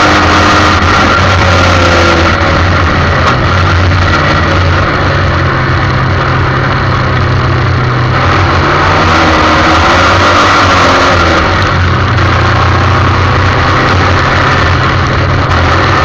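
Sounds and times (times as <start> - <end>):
race car engine running: 0.0 - 16.0.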